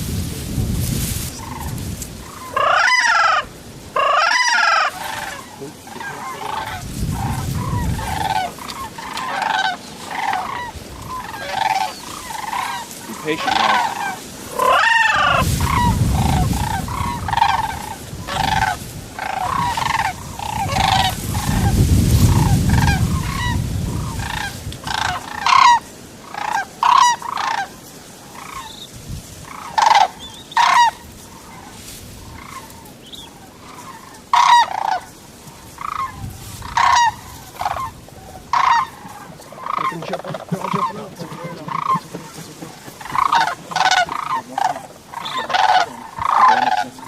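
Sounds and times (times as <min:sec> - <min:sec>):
wind rumble on microphone: 0:00.0 - 0:02.6, 0:06.4 - 0:12.4, 0:14.3 - 0:25.8, 0:28.4 - 0:33.1, 0:35.4 - 0:41.1
geese honking: 0:01.2 - 0:47.0.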